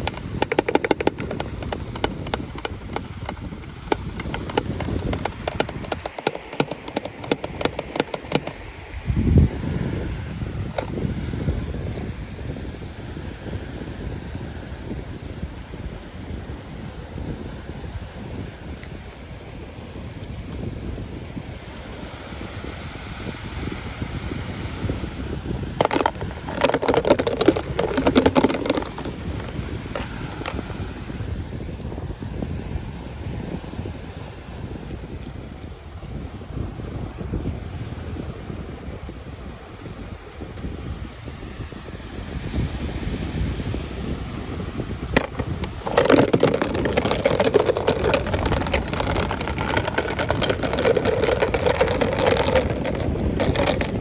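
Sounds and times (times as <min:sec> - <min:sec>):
packaging crackling: 0:00.0 - 0:08.6, 0:25.8 - 0:30.6, 0:45.2 - 0:54.0.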